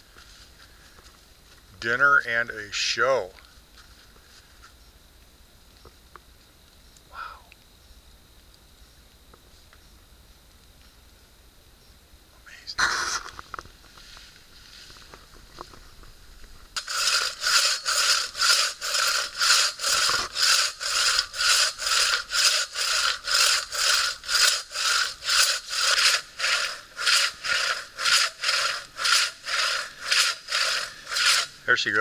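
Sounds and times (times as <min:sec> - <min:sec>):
hand saw cutting log: 0:16.8 - 0:32.0.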